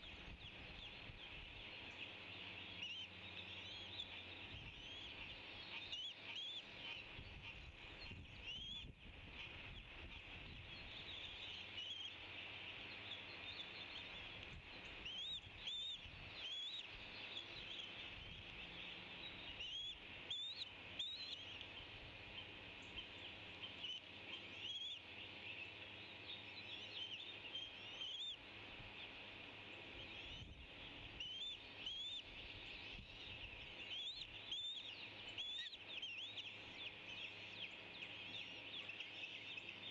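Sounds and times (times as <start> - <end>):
flock of small birds chirping: 0.0 - 39.9.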